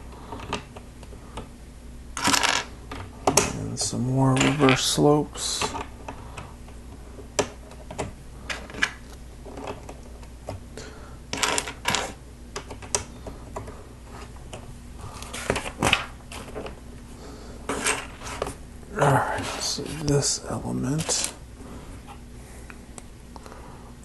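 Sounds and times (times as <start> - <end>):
plastic bricks clicking and clattering: 11.3 - 13.0.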